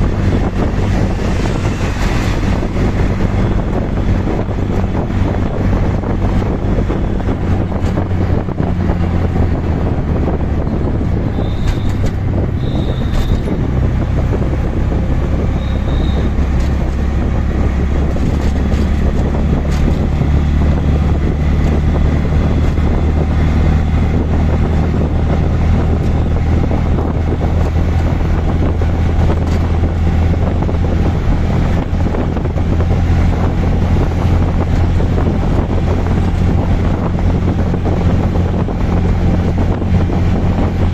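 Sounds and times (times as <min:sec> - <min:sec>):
auto-rickshaw engine running: 0:00.0 - 0:40.9
road noise: 0:00.0 - 0:40.9
wind buffeting microphone: 0:00.0 - 0:40.9.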